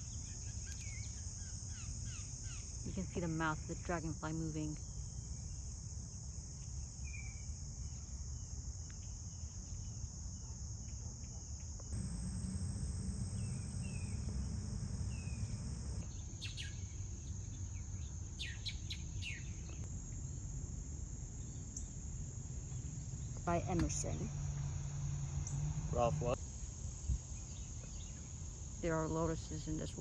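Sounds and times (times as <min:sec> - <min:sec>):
short insect chirps: 0:00.0 - 0:28.8
crickets chorus: 0:00.0 - 0:30.0
low outdoor rumble: 0:11.9 - 0:18.3, 0:19.5 - 0:26.6.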